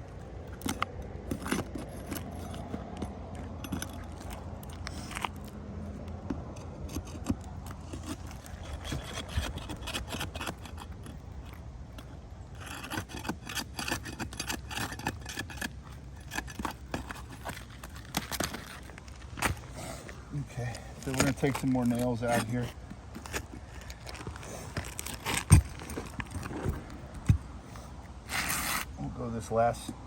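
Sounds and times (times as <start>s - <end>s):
scraping on roof shingles: 20.9s - 27.5s.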